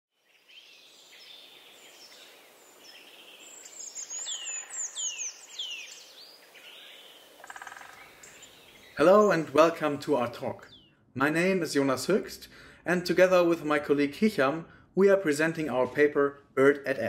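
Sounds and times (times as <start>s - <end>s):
birds singing and calling: 0.2s - 11.0s.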